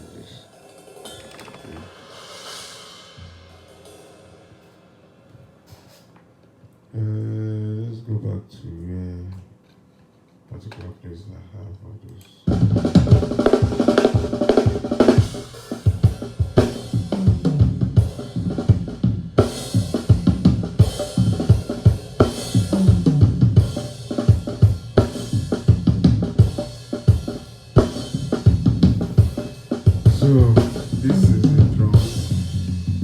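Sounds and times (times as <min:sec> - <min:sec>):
drum kit groove: 0:00.0 - 0:06.2, 0:12.5 - 0:33.0
tom fills: 0:27.9 - 0:33.0.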